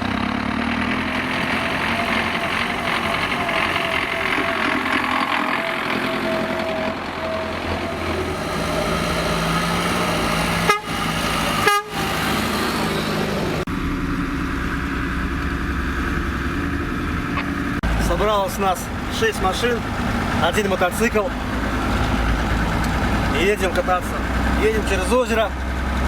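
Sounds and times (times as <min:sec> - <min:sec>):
vehicle engines running: 0:00.0 - 0:26.0
horn toots: 0:01.9 - 0:12.5.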